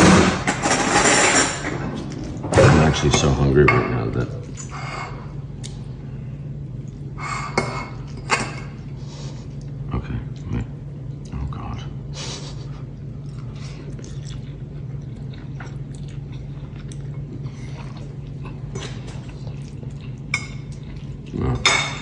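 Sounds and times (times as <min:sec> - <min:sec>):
steady low hum: 0:00.0 - 0:22.0
person chewing food: 0:05.4 - 0:07.2, 0:08.8 - 0:11.5, 0:12.7 - 0:21.6.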